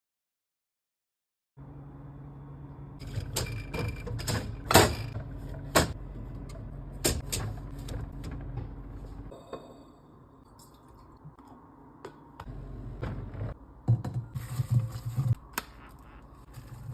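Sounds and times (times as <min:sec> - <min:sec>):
refrigerator hum: 0:01.6 - 0:16.9
items clicking and knocking in fridge: 0:03.0 - 0:09.0, 0:13.0 - 0:15.5.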